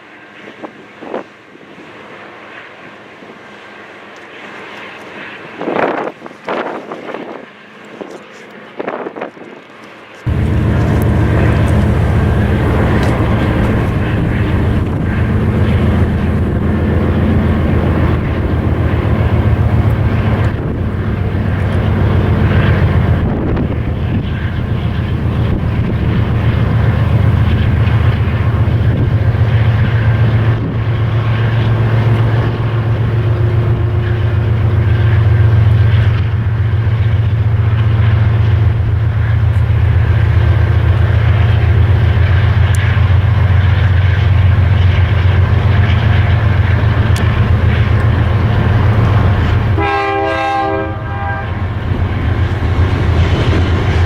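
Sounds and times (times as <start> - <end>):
train air horn blast: 10.3 - 18.7, 49.7 - 51.7
freight train rumbling past: 10.3 - 54.0.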